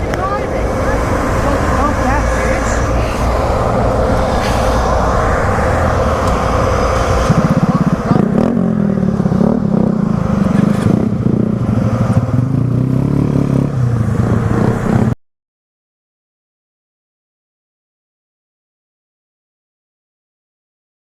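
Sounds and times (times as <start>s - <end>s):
motorcycle engine running: 6.8s - 15.2s.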